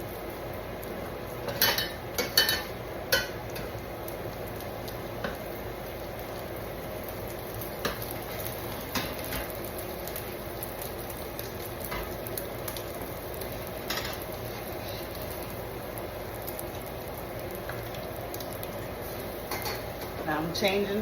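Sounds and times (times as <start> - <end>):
bacon sizzling in a frying pan: 0.0 - 21.0.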